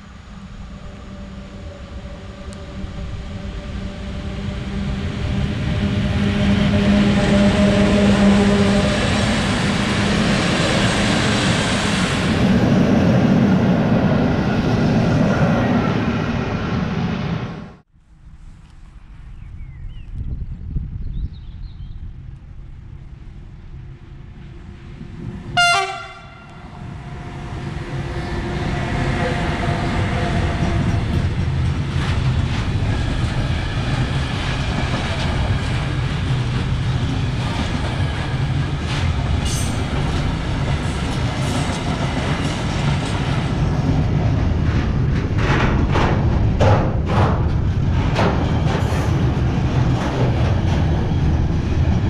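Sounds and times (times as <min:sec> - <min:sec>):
freight train rumbling past: 0:00.0 - 0:18.5, 0:20.4 - 0:52.0
train horn blast: 0:04.2 - 0:10.2, 0:25.5 - 0:30.7.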